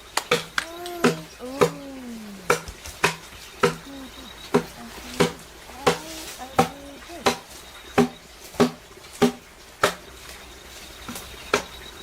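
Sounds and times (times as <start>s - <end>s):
short rising-and-falling calls: 0.0s - 12.0s
sharp strikes on wood: 0.2s - 1.8s, 2.5s - 3.8s, 4.5s - 10.0s.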